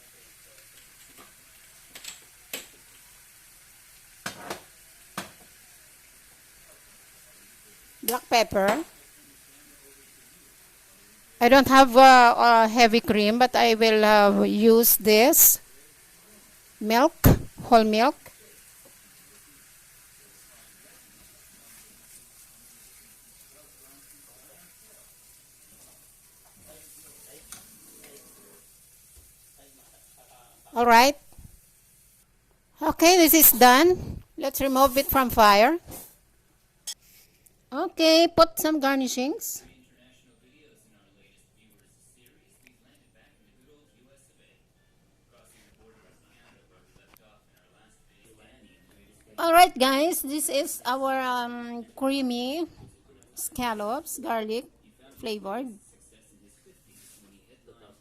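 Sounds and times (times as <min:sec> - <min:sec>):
sauce sizzling in a pan: 0:00.0 - 0:36.2.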